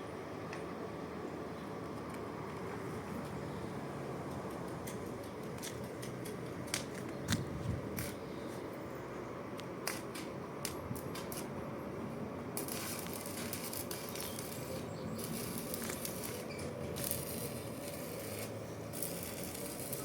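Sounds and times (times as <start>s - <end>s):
welding arc crackling and hissing: 9.8s - 11.6s, 12.5s - 20.0s.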